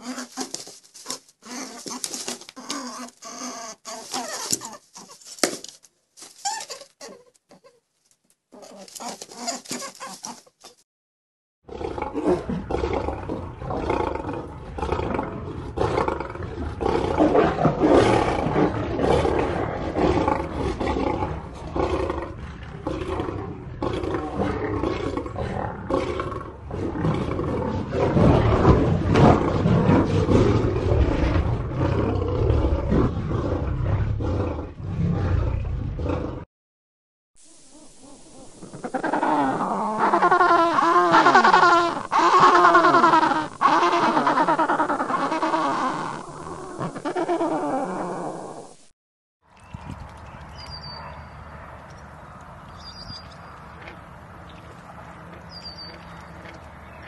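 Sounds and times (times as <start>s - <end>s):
large animal roaring and growling: 11.7s - 36.5s.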